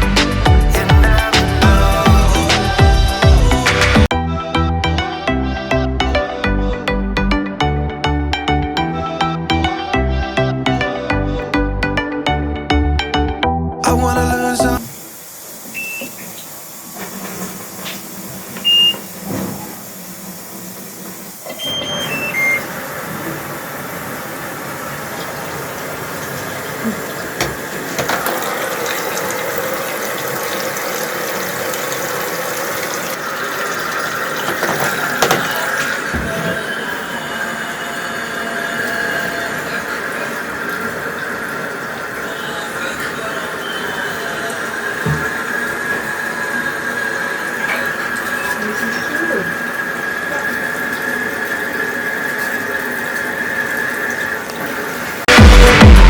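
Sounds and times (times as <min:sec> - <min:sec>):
electronic music with beat: 0:00.0 - 0:14.8, 0:55.3 - 0:56.0
water noise: 0:14.8 - 0:56.0
washing machine running: 0:14.9 - 0:56.0
thin high whine: 0:34.4 - 0:56.0.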